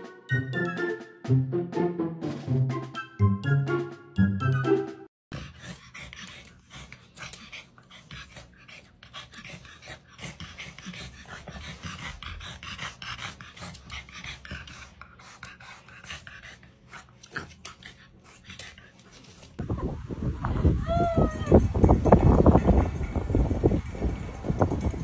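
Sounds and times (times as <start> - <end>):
dog panting: 5.3 - 19.6.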